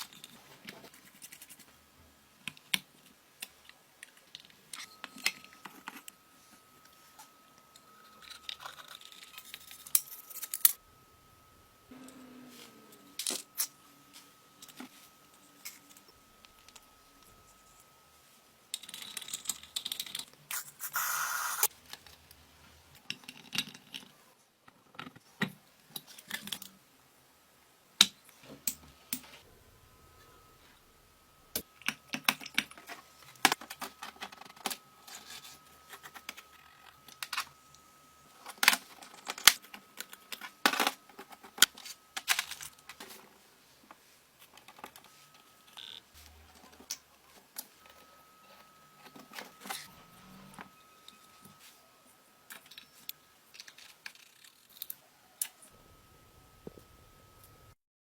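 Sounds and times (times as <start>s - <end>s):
metal parts clicking and scraping: 8.2s - 10.8s.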